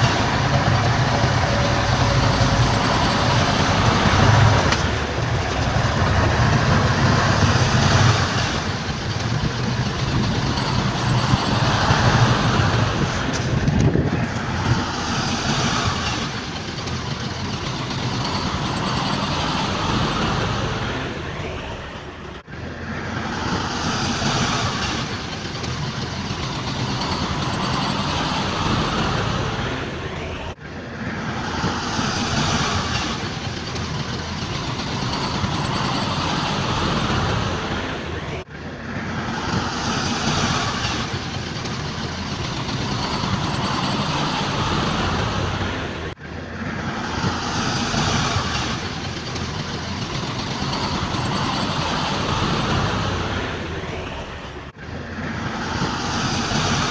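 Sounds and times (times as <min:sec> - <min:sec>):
heavy machinery engine running: 0:00.0 - 0:56.9.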